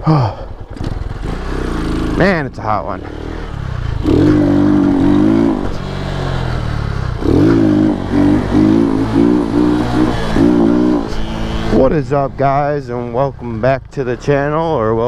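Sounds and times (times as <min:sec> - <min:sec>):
small motorbike engine revving: 0:00.6 - 0:02.4, 0:03.0 - 0:12.3.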